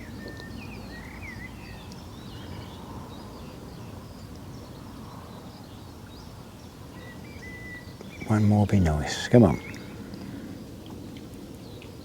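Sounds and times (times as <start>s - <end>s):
small birds chirping: 5.5s - 10.4s.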